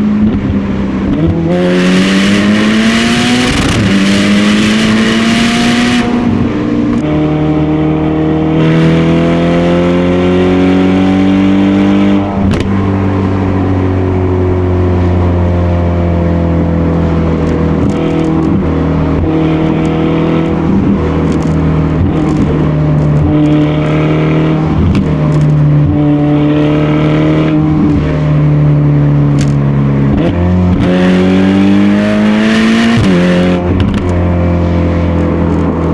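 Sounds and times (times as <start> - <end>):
car engine accelerating through gears: 0.0 - 35.9.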